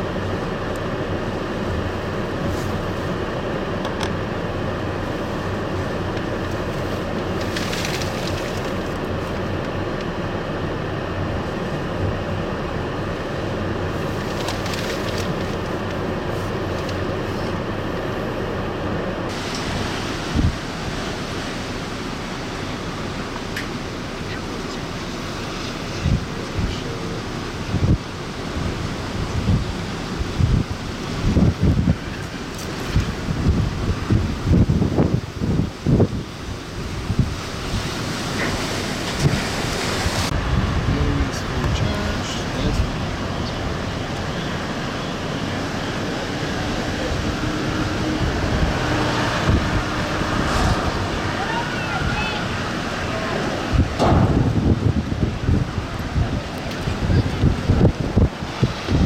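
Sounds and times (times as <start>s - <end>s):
strong wind blowing: 0.0s - 59.0s
wind buffeting microphone: 19.3s - 23.2s, 24.9s - 59.0s.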